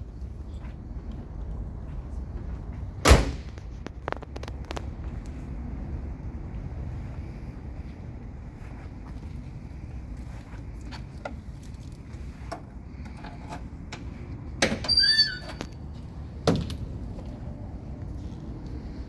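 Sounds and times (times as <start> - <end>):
wind rumble: 0.0 - 13.0
car door squealing open: 14.6 - 15.7.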